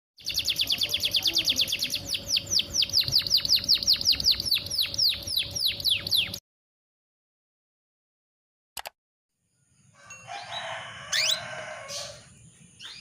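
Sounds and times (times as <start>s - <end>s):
canary chirping: 0.2s - 6.4s.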